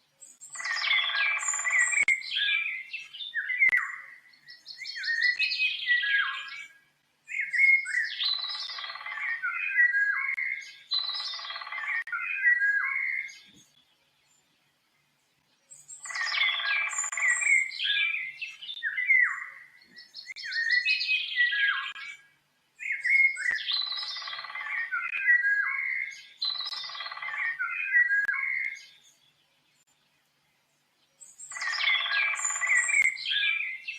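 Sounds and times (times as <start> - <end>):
songbird warbling and chirping: 0.1 - 33.9.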